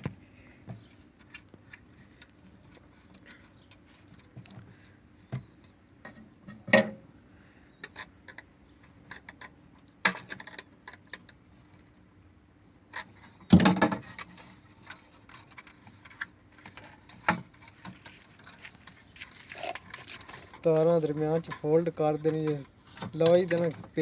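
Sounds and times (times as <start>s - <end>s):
clicks and knocks of small parts: 12.9s - 24.0s.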